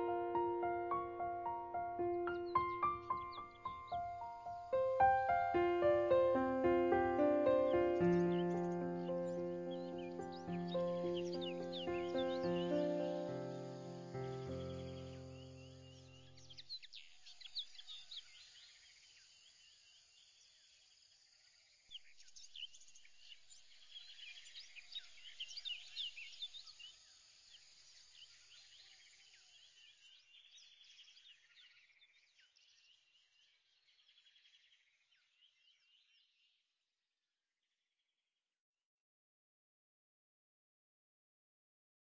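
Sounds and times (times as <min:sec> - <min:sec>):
background music note: 0:00.0 - 0:15.4
birds chirping and trilling: 0:00.0 - 0:18.9, 0:21.9 - 0:36.5.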